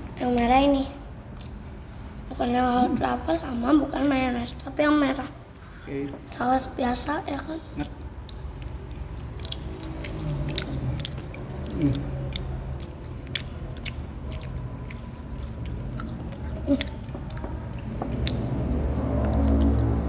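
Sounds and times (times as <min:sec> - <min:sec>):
wet chewing: 0:01.3 - 0:02.2, 0:07.7 - 0:20.0
mouth clicks and smacks: 0:07.8 - 0:20.0.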